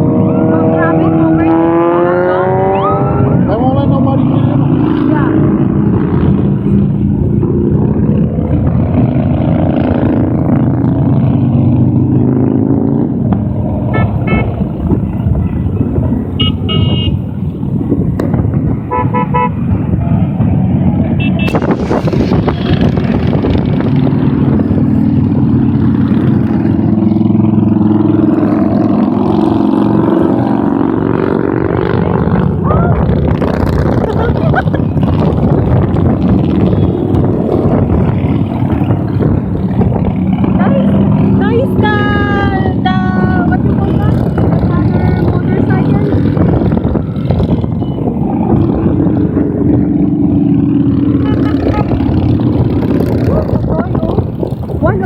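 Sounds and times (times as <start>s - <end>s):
motorcycles riding past: 0.0s - 55.0s
short horn toots: 16.4s - 17.2s.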